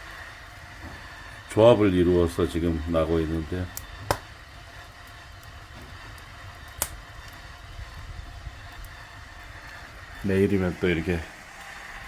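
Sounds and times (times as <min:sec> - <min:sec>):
steam hissing from pot: 0:00.0 - 0:12.0
wood fire crackling: 0:00.0 - 0:12.0
sharp pop of fire: 0:03.8 - 0:04.3, 0:06.6 - 0:07.1.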